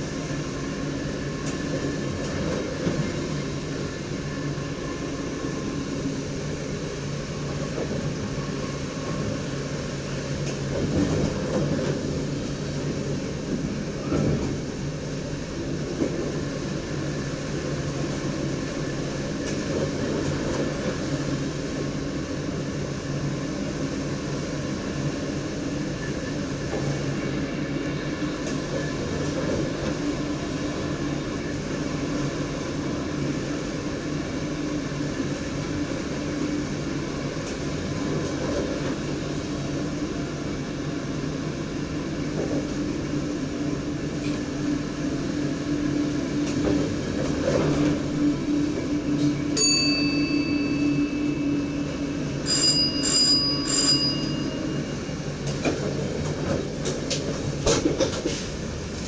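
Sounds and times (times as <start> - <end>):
train wheels rumbling on rail: 0.0 - 59.0
high bell-like ringing tone: 49.6 - 55.1.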